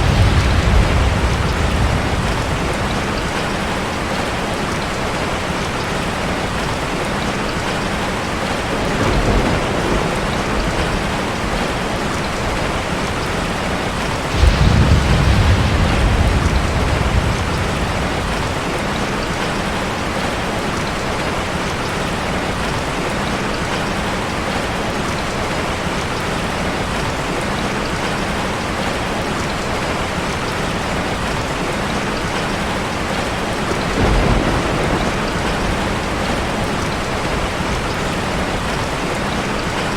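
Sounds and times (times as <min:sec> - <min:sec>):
thunder rumbling: 0:00.0 - 0:22.8, 0:33.0 - 0:39.9
heavy rain hitting a car: 0:00.0 - 0:39.9.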